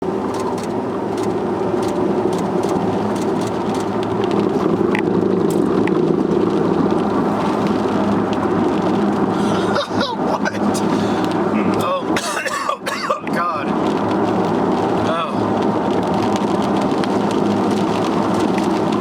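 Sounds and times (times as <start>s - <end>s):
vehicle driving drone: 0.0s - 12.2s.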